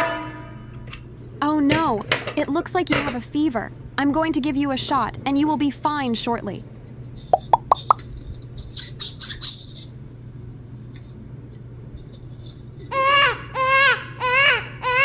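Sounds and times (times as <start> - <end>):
toy doll electronic crying: 13.0 - 15.0.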